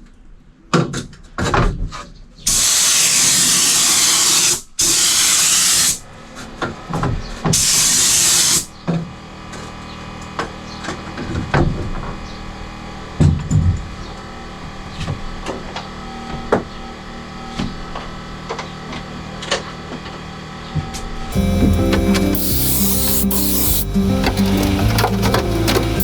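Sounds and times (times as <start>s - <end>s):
pressurized spray hissing: 21.3s - 26.0s.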